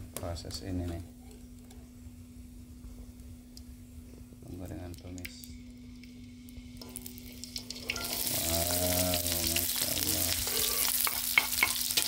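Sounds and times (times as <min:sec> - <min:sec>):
food sizzling in a wok: 0:04.9 - 0:12.0.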